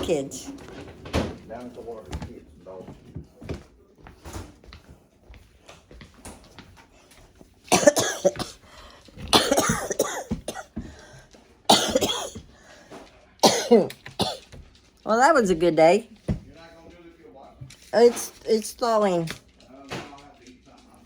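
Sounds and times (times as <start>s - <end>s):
person coughing: 7.7s - 8.6s, 9.2s - 10.9s, 11.7s - 12.4s, 13.4s - 14.5s.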